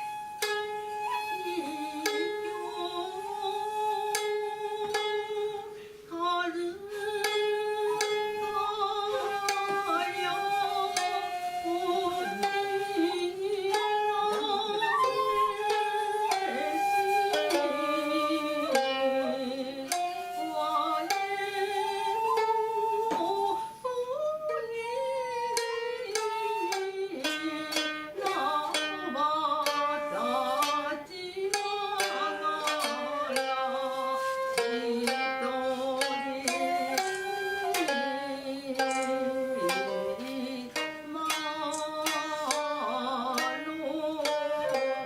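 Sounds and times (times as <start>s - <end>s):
wavering flute notes: 0.0s - 4.6s, 7.8s - 27.1s, 32.7s - 40.8s
plucked string notes: 25.4s - 45.0s.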